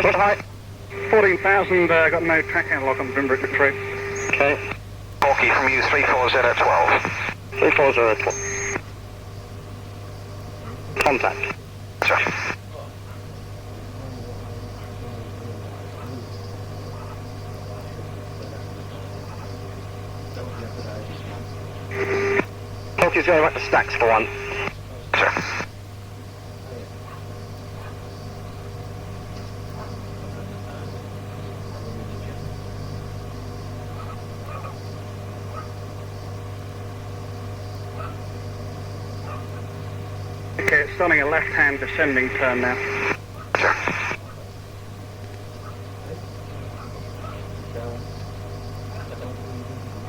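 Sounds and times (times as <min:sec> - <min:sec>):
radio receiver hum and hiss: 0:00.0 - 0:50.0.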